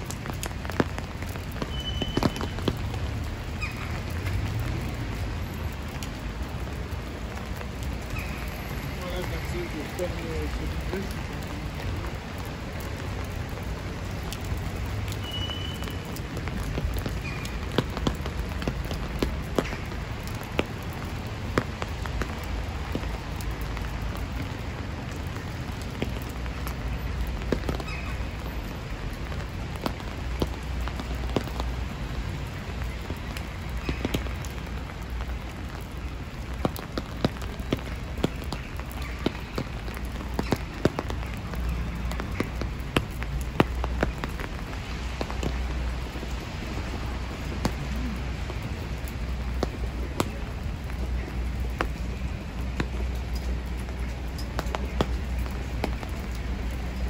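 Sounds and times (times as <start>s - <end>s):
sharp raindrop taps: 0.0s - 57.0s
steady rain on wet street: 0.0s - 57.0s.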